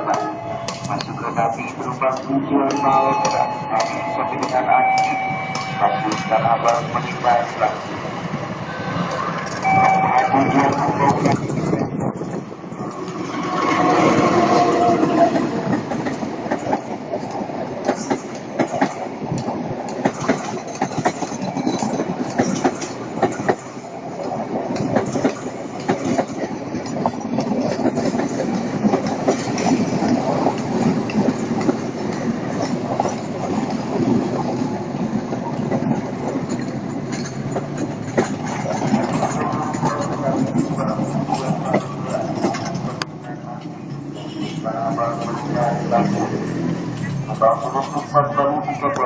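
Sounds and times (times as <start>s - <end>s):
train wheels clacking over rail joints: 10.6s - 43.8s.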